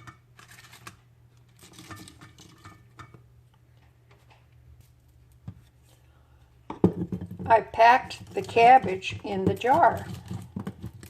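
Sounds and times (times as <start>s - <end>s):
cabbage rustling in a glass jar: 0.4s - 2.9s.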